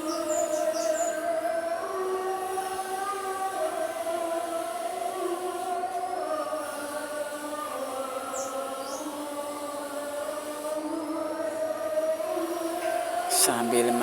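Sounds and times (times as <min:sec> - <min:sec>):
voices chanting: 0:00.0 - 0:14.0.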